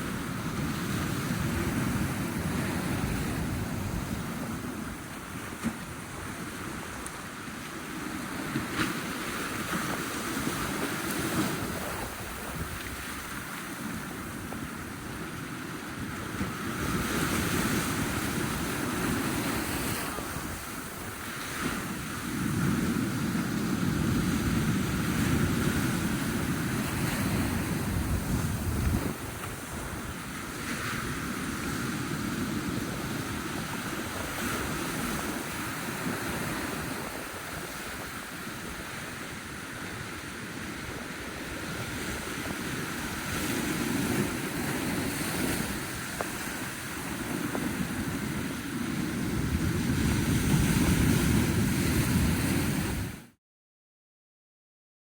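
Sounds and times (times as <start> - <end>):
wind rumbling on microphone: 0.0 - 53.3
ocean waves washing in: 0.0 - 53.4.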